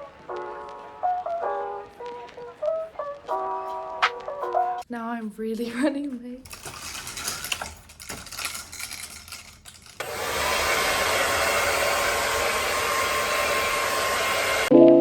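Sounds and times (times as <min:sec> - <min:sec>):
hair dryer blowing: 0:10.0 - 0:14.7.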